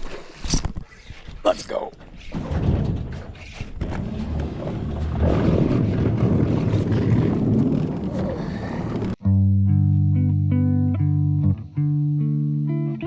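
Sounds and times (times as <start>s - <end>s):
wind: 0.0s - 9.2s.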